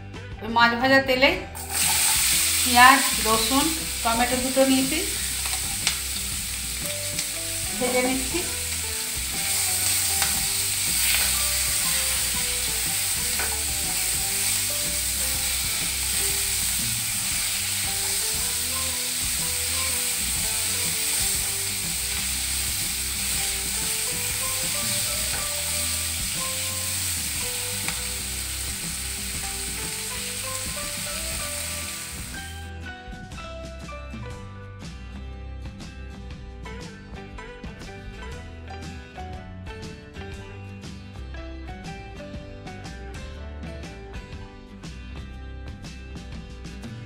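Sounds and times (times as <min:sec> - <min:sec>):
vegetables sizzling in oil: 0:01.5 - 0:32.7.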